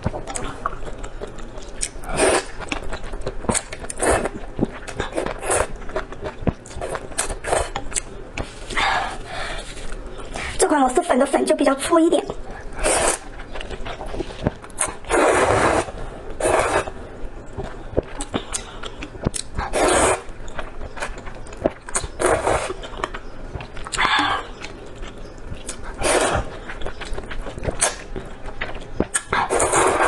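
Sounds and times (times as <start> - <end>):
wet mouth clicks and chewing: 0.0 - 8.5, 17.5 - 30.0
person slurping noodles: 12.8 - 13.2, 15.1 - 16.9, 19.7 - 20.3, 26.0 - 26.5, 29.4 - 30.0.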